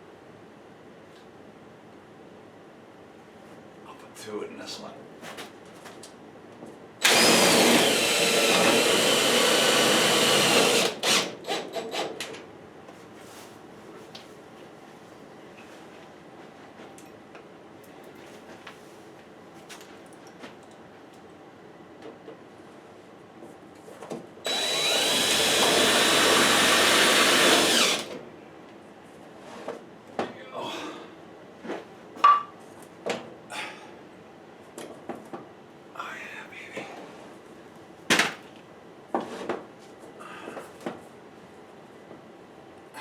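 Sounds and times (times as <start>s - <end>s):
power drill driving screws into metal: 7.0s - 12.2s, 24.4s - 28.2s.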